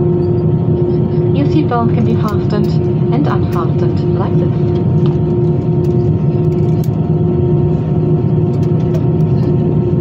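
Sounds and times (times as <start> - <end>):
aircraft cabin drone: 0.0 - 10.0
faint clicks and rattles: 4.7 - 7.0.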